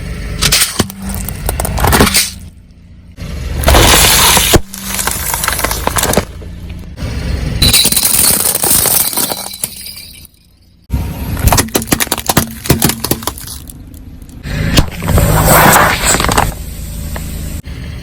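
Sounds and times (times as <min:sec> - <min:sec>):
glass crushed under car tyres: 0:00.4 - 0:02.5, 0:03.6 - 0:06.5, 0:07.6 - 0:10.4, 0:11.4 - 0:16.6.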